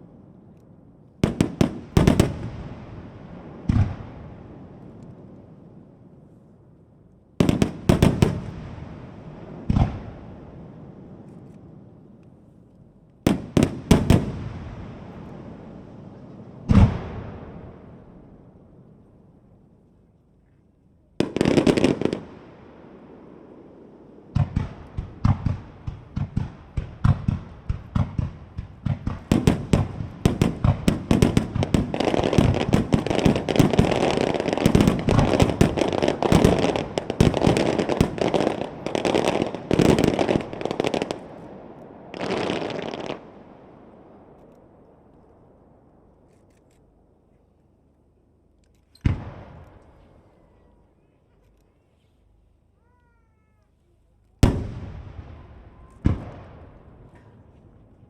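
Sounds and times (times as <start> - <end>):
firework shells bursting: 24.4 - 41.5.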